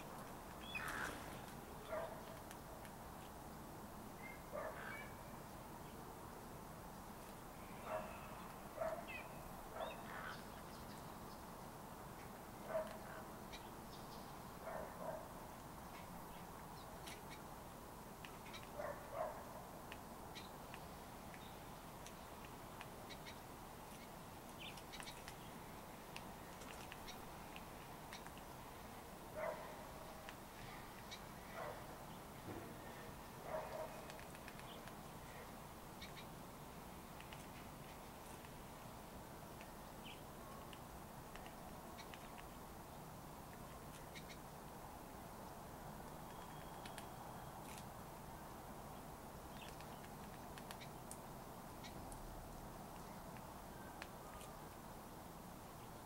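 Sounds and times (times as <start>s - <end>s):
small birds chirping: 0.5s - 2.5s, 4.2s - 14.9s, 15.8s - 17.6s, 18.2s - 38.6s, 39.4s - 44.5s, 45.5s - 52.2s
faint high chirps: 46.2s - 47.8s.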